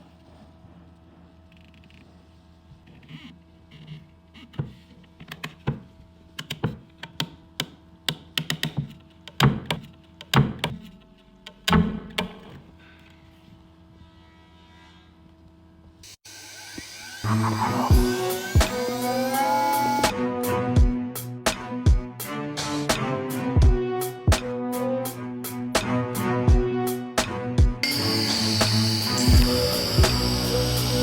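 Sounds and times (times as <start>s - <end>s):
electrical hum: 27.8s - 31.0s.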